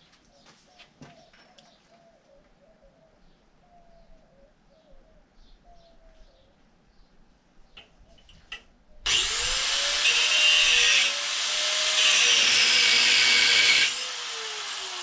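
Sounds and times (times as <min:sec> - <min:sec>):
bird cooing and chirping: 0:00.3 - 0:06.6.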